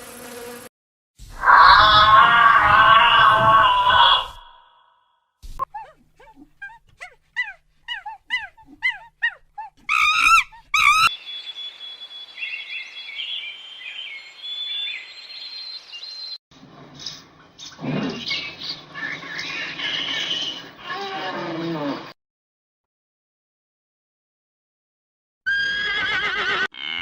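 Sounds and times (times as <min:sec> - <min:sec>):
warbling calls: 0:01.4 - 0:04.8, 0:05.6 - 0:11.1
bird-like chirps: 0:07.4 - 0:16.4, 0:17.0 - 0:20.6.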